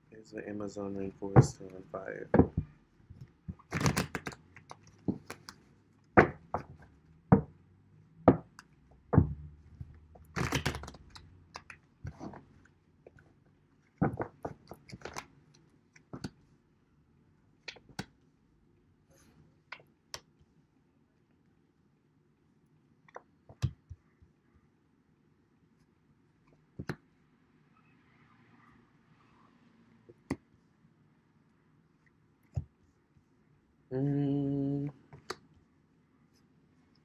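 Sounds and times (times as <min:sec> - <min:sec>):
cards shuffled and tapped on table: 0:01.3 - 0:07.6, 0:08.2 - 0:13.3, 0:13.9 - 0:16.4, 0:17.6 - 0:18.2, 0:23.1 - 0:24.4, 0:26.5 - 0:27.1, 0:30.1 - 0:30.6, 0:32.4 - 0:32.9, 0:35.0 - 0:35.6.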